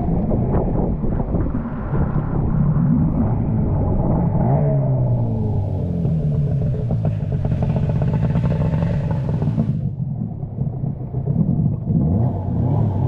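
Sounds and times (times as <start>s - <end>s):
vehicle engine running: 3.4s - 10.6s.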